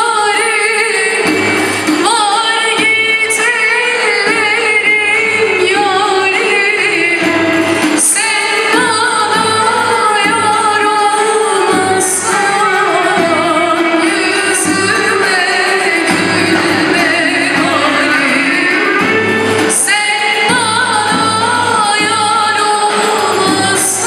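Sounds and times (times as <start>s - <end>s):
percussion keeping a steady beat: 0.0s - 24.0s
violins: 0.0s - 24.0s
woman singing folk song: 0.0s - 24.0s.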